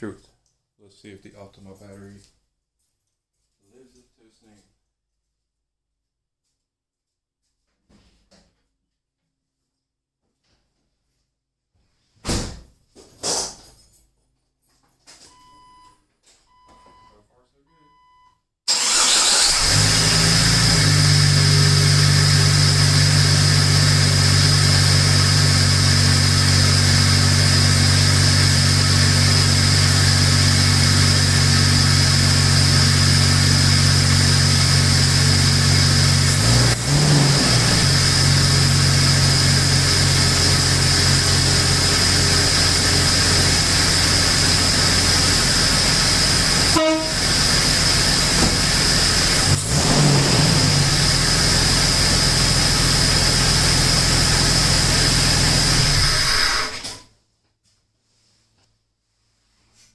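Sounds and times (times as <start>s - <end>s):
car engine idling: 18.7s - 56.7s.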